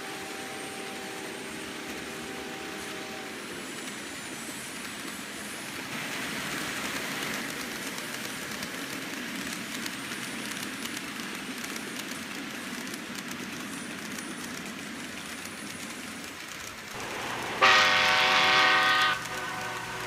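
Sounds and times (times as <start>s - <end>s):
model trains whirring: 0.0s - 20.0s
wheels clicking on track: 0.0s - 20.0s
locomotive horn: 17.0s - 20.0s.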